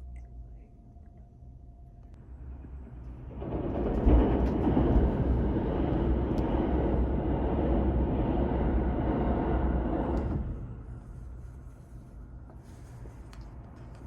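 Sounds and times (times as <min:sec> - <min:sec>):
train rushing past: 0:02.3 - 0:11.3.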